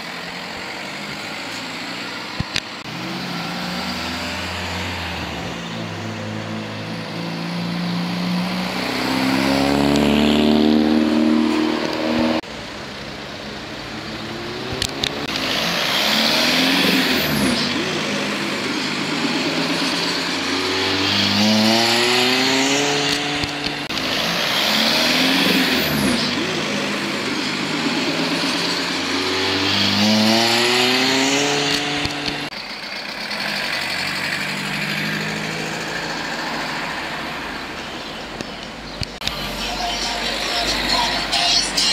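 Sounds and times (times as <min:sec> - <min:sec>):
car engines accelerating hard: 0:00.0 - 0:41.9
sharp cracks: 0:22.2 - 0:25.2.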